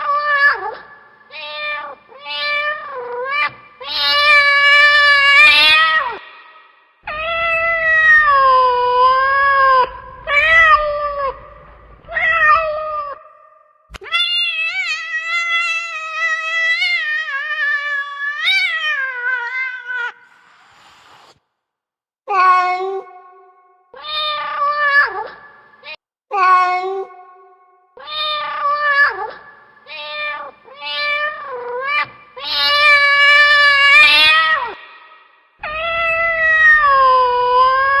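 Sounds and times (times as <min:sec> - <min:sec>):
cat meowing: 0:00.0 - 0:06.3, 0:07.1 - 0:13.3, 0:14.0 - 0:20.2, 0:28.0 - 0:34.8, 0:35.6 - 0:38.0.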